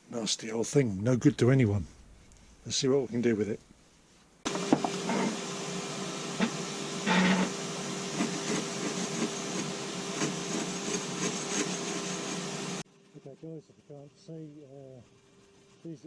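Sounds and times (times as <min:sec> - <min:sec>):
tool scraping: 0:04.5 - 0:05.5, 0:06.4 - 0:12.8
power tool running: 0:04.5 - 0:12.8.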